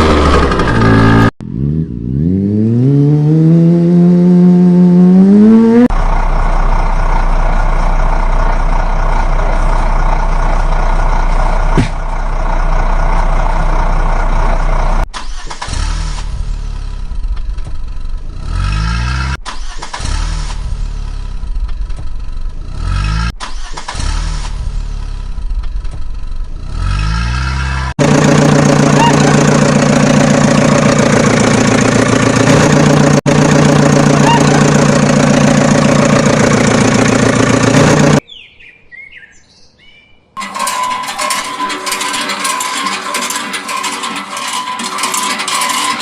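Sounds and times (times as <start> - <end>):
engine starting and running: 0.0 - 1.4, 5.1 - 38.2, 40.4 - 46.0
engine revving: 0.0 - 6.2, 14.8 - 17.2, 18.2 - 25.4, 26.6 - 38.2.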